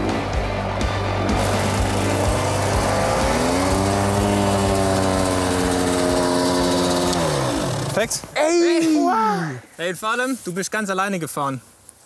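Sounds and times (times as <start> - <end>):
motocross motorcycle engine revving: 1.1 - 8.3.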